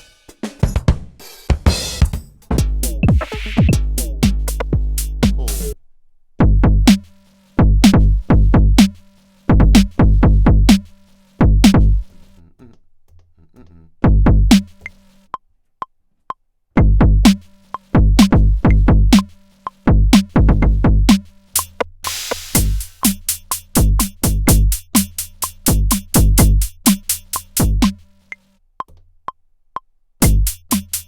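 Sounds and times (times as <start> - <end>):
electronic kick drum hits: 1.6 - 5.8, 6.4 - 7.0, 7.6 - 8.9, 9.5 - 10.8, 11.4 - 12.0, 14.1 - 14.7, 16.8 - 17.3, 18.0 - 19.2, 19.9 - 21.2, 22.6 - 23.0, 23.8 - 24.8, 25.7 - 26.8, 27.6 - 27.9, 30.2 - 30.7.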